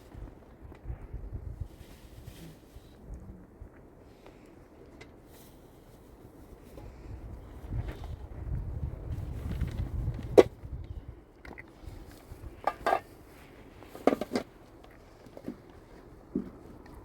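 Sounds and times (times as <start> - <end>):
wind rumble: 0.0 - 3.8, 6.6 - 14.0.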